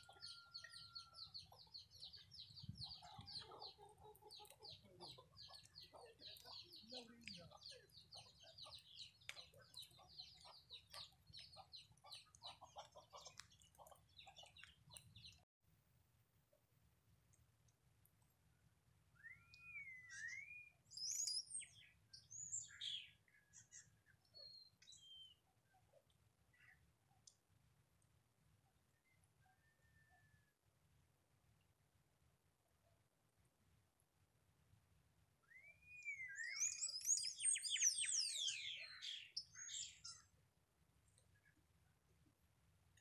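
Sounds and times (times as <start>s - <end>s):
bird singing: 0.0s - 15.4s, 19.2s - 25.4s, 35.4s - 40.3s
bird whistling song: 19.2s - 21.8s, 35.4s - 40.2s.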